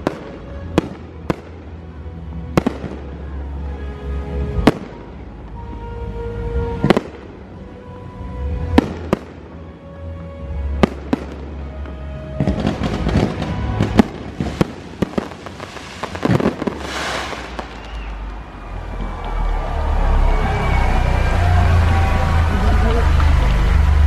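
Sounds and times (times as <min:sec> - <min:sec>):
fireworks bursting with bangs: 0:06.8 - 0:07.3, 0:12.3 - 0:18.4
show music: 0:10.4 - 0:24.0.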